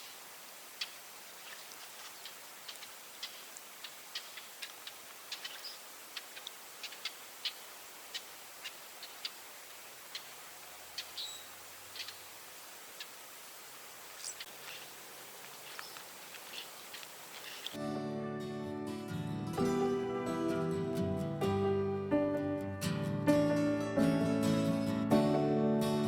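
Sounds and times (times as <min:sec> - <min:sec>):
faint steady hiss: 0:00.0 - 0:17.8.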